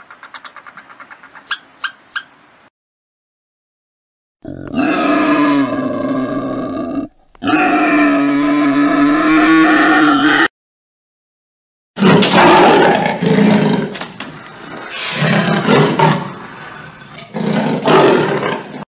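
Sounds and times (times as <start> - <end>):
big cat roaring: 4.4 - 10.5, 12.0 - 18.8.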